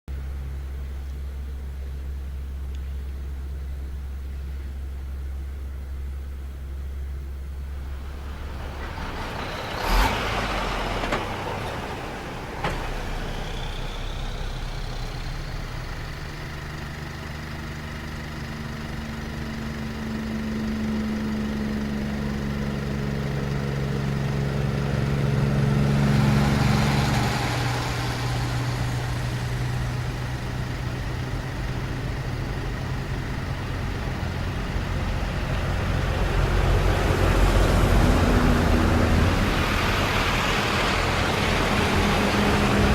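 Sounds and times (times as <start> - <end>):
heavy truck engines running: 0.3 - 42.9
vehicle passing by: 7.8 - 15.4, 24.4 - 30.2, 34.4 - 42.9.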